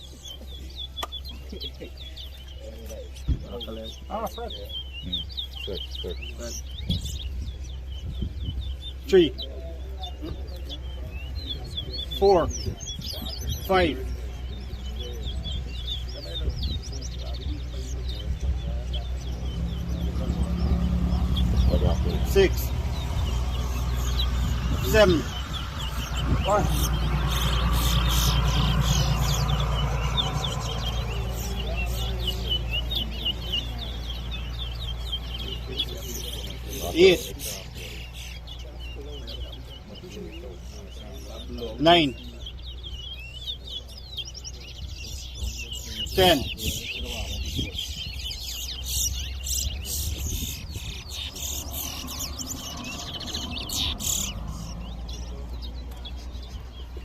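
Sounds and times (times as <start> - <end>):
finches chirping: 0.0 - 57.0.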